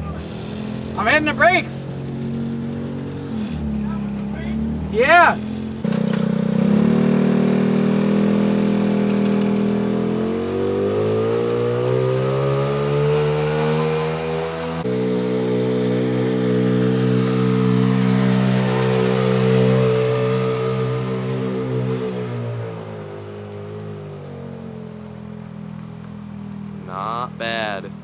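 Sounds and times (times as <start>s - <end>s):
vehicle engine accelerating: 0.0s - 28.0s.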